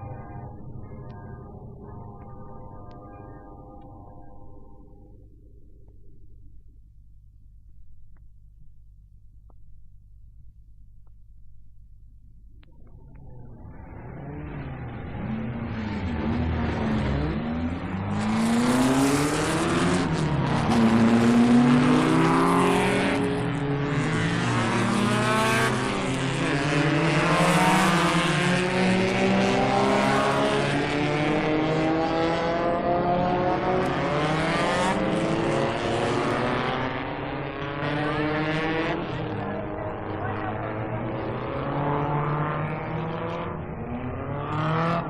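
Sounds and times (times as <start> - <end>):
racing car engines: 12.7 - 45.0.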